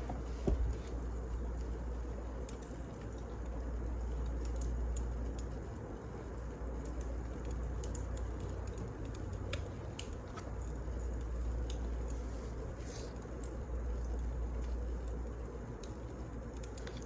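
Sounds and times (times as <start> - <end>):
fire low rumble: 0.0 - 16.8
firewood crackling: 0.0 - 17.0.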